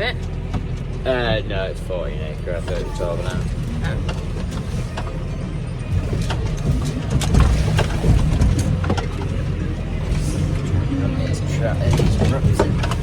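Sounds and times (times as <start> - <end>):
tractor engine droning: 0.0 - 13.0
clicks and rattles: 6.0 - 10.8, 11.9 - 13.0.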